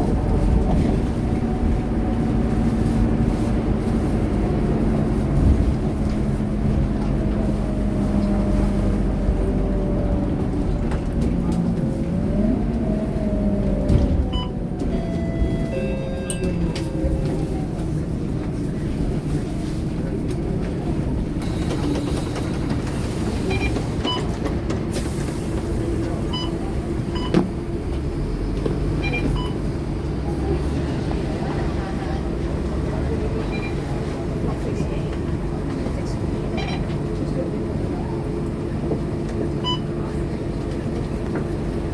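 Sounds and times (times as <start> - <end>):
bus engine and road noise: 0.0 - 41.9
passengers' voices: 0.0 - 41.9.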